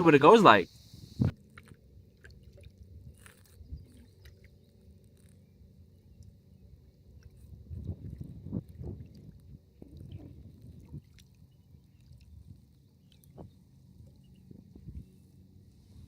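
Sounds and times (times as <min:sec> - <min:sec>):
wind on microphone: 0:00.8 - 0:01.4, 0:07.3 - 0:11.2, 0:13.2 - 0:15.2
waves sloshing against hull: 0:01.2 - 0:16.0.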